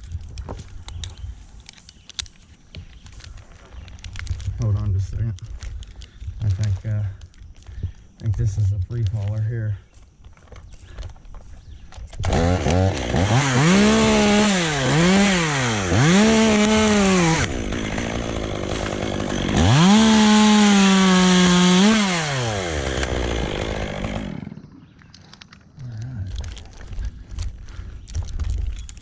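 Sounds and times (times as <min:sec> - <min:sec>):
chainsaw revving and idling: 0:12.2 - 0:24.8.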